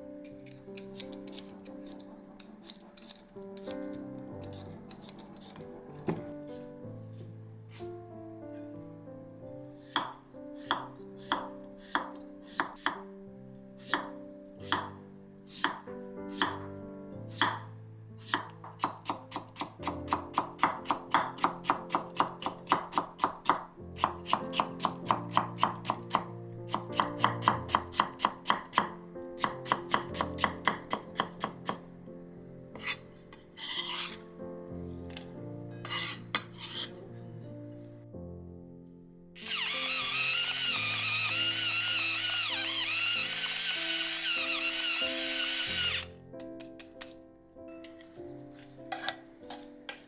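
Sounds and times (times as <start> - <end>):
soft background music: 0.0 - 50.0
knife chopping on cutting board: 9.9 - 13.0, 17.4 - 17.7, 18.3 - 31.8.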